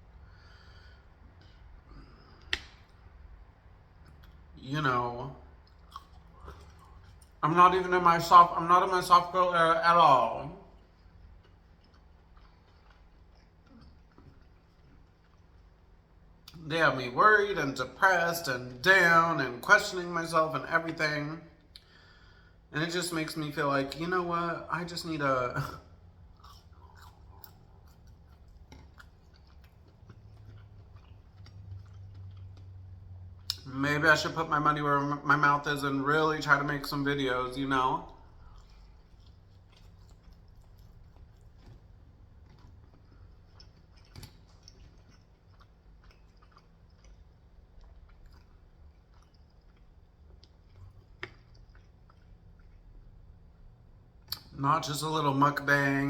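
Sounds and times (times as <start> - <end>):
faint chewing: 0.1 - 4.6, 5.4 - 9.6, 10.6 - 16.6, 24.8 - 34.3, 37.9 - 54.6.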